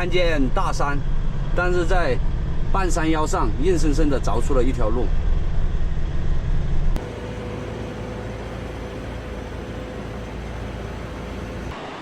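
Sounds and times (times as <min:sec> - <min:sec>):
truck engine and tyres rumbling: 0:05.8 - 0:12.0
faint hum: 0:07.0 - 0:11.8.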